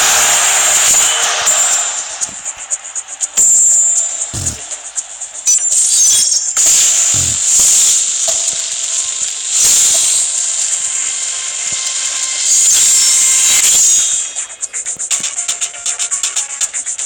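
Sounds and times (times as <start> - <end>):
spinning tops whirring and clashing: 0.0 - 17.0.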